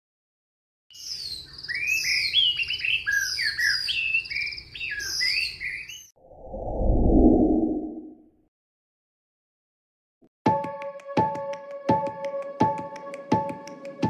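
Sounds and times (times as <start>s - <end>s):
birdsong chirps and trills: 0.9s - 6.2s
low whoosh: 6.2s - 8.2s.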